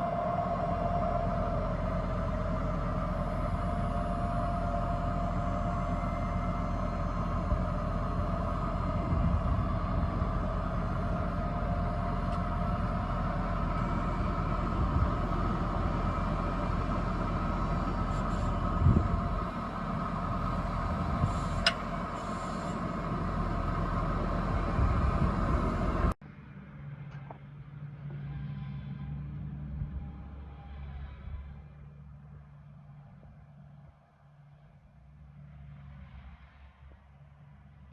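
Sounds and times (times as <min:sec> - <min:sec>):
tractor engine rumbling: 0:00.0 - 0:26.2
engine whine: 0:00.0 - 0:31.7.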